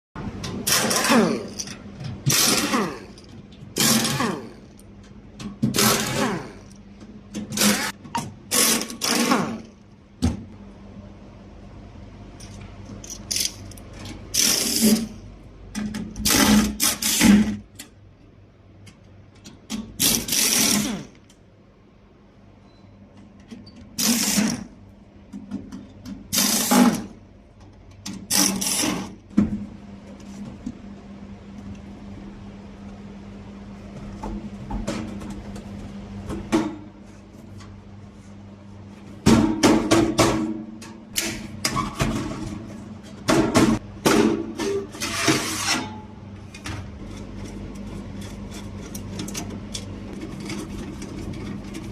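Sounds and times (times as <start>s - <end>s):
fan motor humming: 46.0s - 51.9s.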